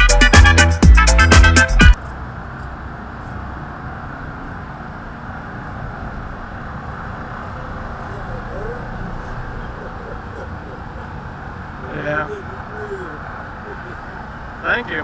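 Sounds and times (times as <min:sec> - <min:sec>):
music track: 0:00.0 - 0:02.0
steady outdoor background noise: 0:01.9 - 0:15.0.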